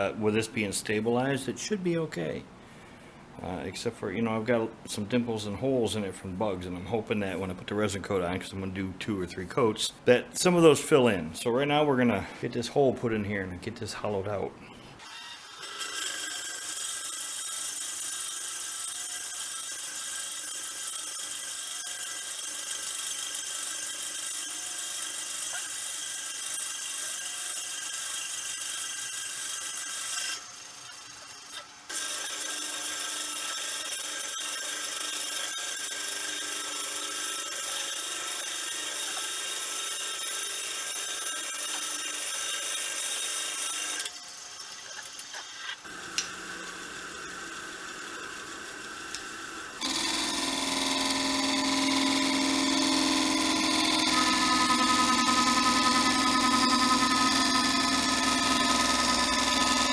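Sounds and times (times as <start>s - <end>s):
tool scraping spinning wood: 15.0s - 59.9s
wood lathe motor whine: 15.0s - 59.9s.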